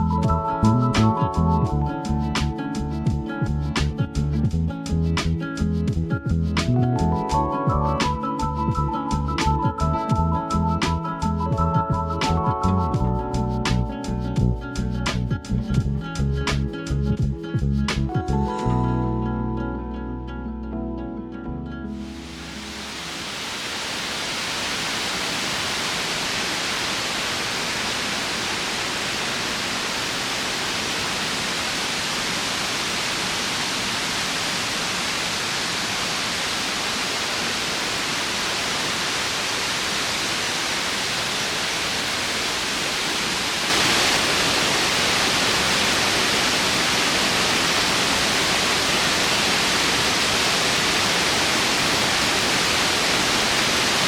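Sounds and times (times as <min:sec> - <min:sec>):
waterfall roaring: 0:22.0 - 0:54.0.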